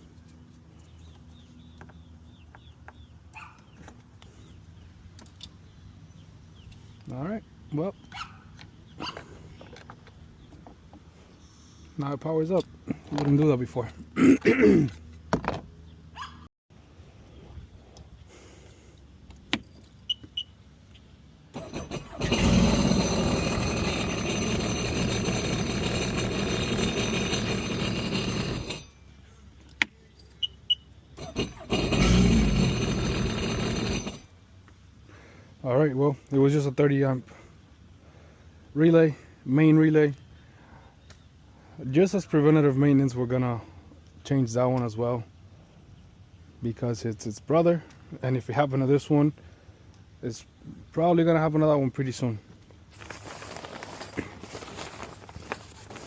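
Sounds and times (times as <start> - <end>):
small bird chirping: 0.2 - 10.6
watercraft engine cranking and running: 21.5 - 28.9, 31.2 - 34.4.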